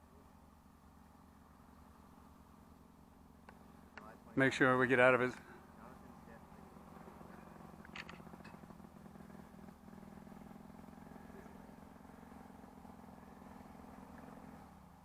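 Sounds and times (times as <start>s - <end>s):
small aircraft engine humming: 0.0s - 15.0s
short clicks: 7.8s - 8.5s.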